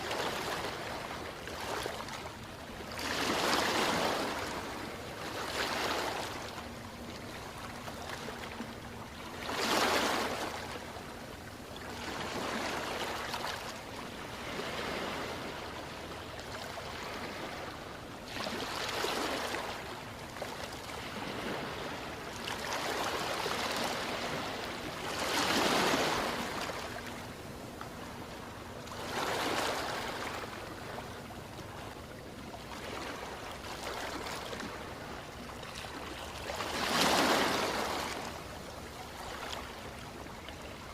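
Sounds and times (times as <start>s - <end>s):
ocean waves washing in: 0.0s - 40.9s.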